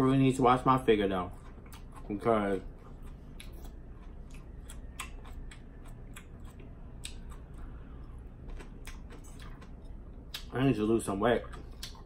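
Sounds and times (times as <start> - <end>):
chewing salad crunches: 1.0 - 7.7, 8.4 - 10.6.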